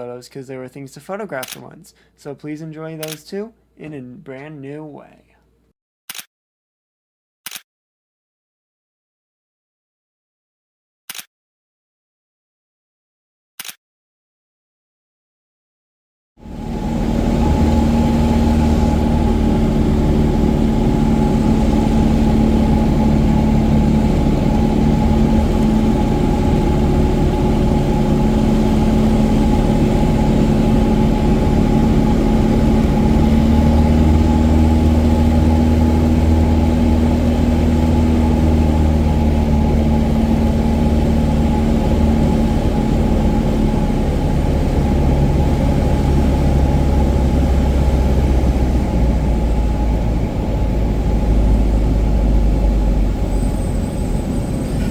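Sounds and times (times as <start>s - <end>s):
propeller plane engine droning: 16.4s - 54.9s.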